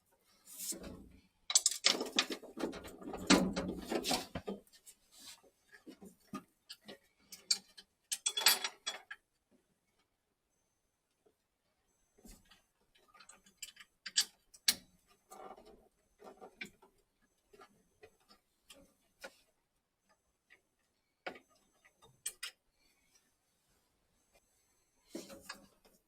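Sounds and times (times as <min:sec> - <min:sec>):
pipe fittings clicking and knocking: 0:01.5 - 0:04.6, 0:13.0 - 0:17.0, 0:21.3 - 0:22.6.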